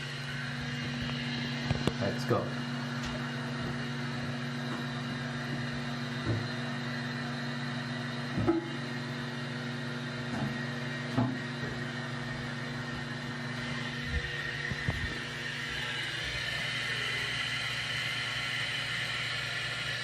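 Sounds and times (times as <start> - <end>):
toilet fill valve hissing: 13.5 - 20.0.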